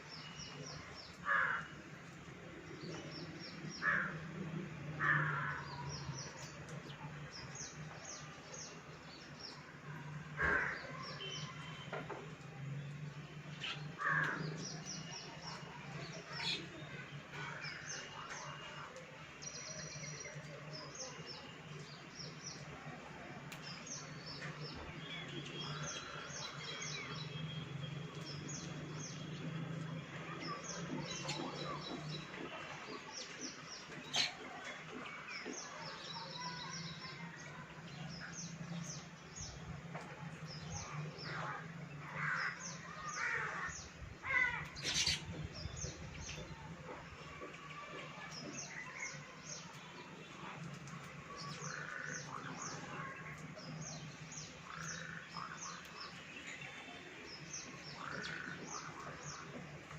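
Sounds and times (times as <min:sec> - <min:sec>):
birds chirping: 0:23.6 - 0:59.9.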